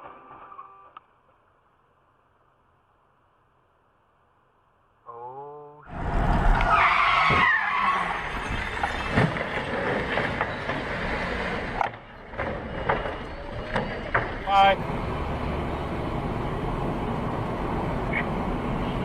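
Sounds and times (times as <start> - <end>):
road noise: 0.1 - 19.0
car tyres skidding: 5.9 - 11.8.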